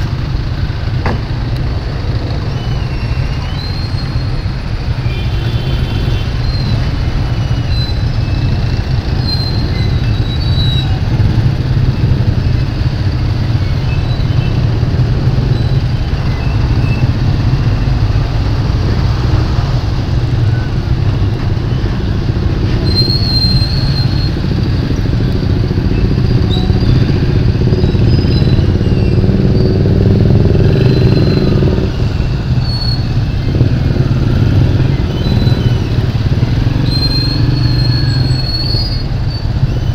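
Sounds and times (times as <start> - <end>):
motorcycle engine rumbling: 0.0 - 39.9
short high-pitched squeaks: 22.7 - 24.5, 36.7 - 39.9.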